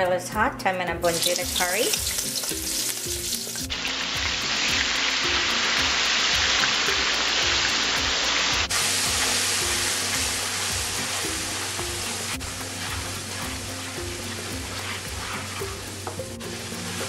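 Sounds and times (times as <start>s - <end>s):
curry paste sizzling in oil: 1.1s - 17.0s
spatula stirring in wok: 8.7s - 17.0s.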